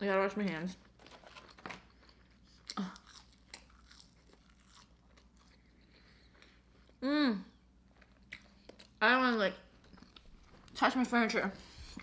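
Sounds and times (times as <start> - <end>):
chewing crunches and mouth clicks: 1.0 - 7.0, 7.8 - 9.0, 9.6 - 10.8.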